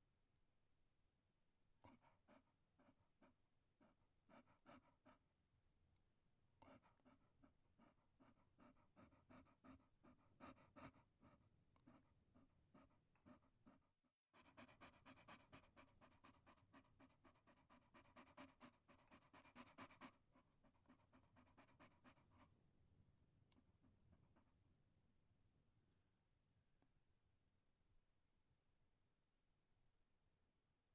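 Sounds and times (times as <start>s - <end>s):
dog panting: 1.8s - 5.4s, 6.6s - 24.6s.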